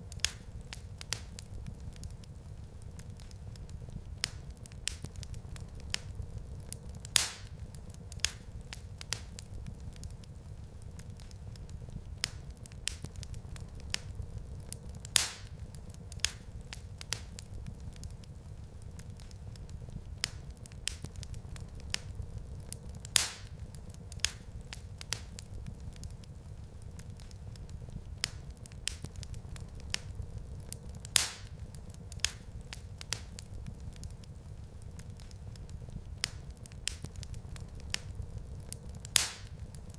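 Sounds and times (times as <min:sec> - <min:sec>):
low rumble of flames: 0:00.0 - 0:39.9
wood fire crackling: 0:00.0 - 0:39.9
loud fire pop: 0:39.2 - 0:39.5.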